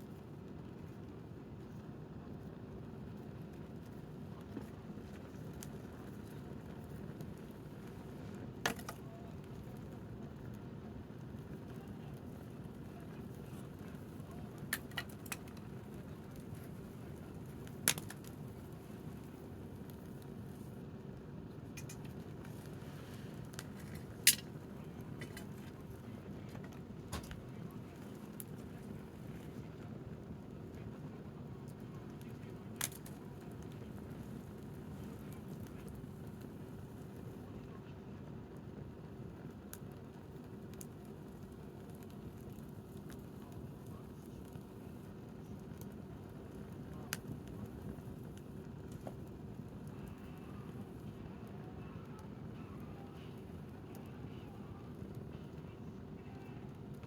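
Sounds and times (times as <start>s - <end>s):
wood fire rumbling and crackling: 0.0s - 57.0s
sharp pop of fire: 17.8s - 18.4s.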